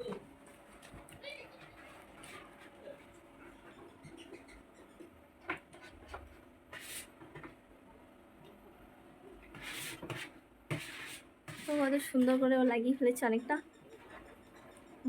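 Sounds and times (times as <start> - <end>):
sticker rustling rubs: 9.5 - 12.4.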